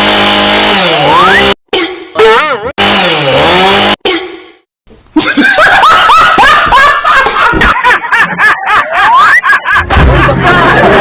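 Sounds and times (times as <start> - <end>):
chainsaw engine running hard: 0.0 - 1.6, 2.8 - 4.0
people laughing: 5.2 - 11.0.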